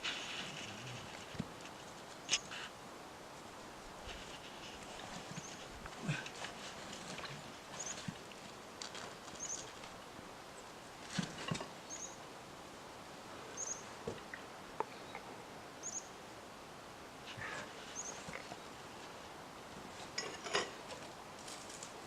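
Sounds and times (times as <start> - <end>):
faint outdoor hiss: 0.0 - 22.0
knocks and rustles: 11.0 - 11.8.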